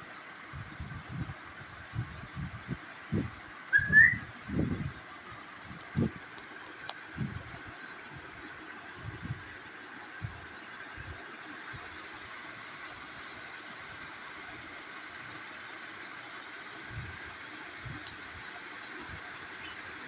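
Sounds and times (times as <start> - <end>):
steady high-pitched tone: 0.0 - 6.4
parrot whistling: 3.7 - 4.3.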